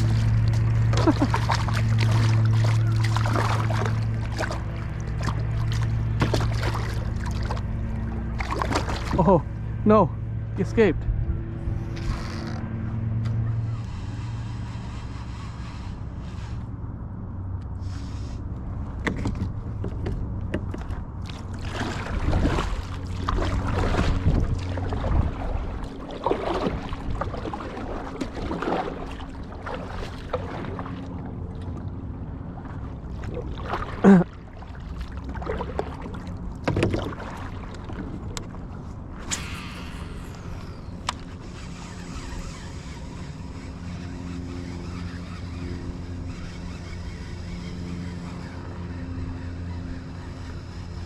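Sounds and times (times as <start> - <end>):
steady low hum: 0.0 - 51.0
gear knocking against kayak hull: 19.0 - 21.0.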